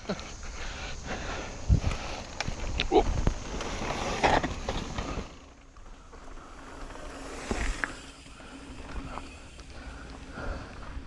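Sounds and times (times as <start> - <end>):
tyres rolling on dirt: 0.0 - 11.0
wind noise on microphone: 1.2 - 4.3.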